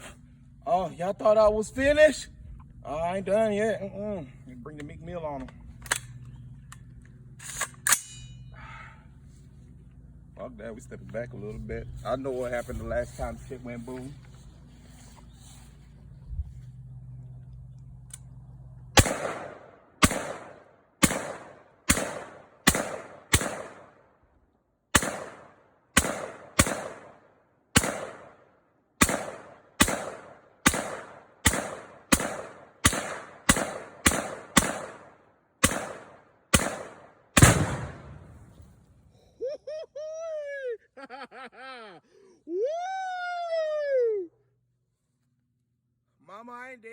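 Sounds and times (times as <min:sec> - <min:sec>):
rifle shots echoing: 0:19.0 - 0:24.0, 0:24.9 - 0:39.0.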